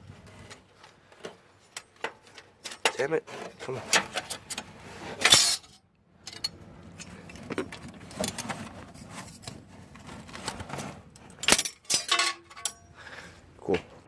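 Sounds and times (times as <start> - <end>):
metal strip clinking and scraping: 1.7 - 7.4, 10.3 - 12.8.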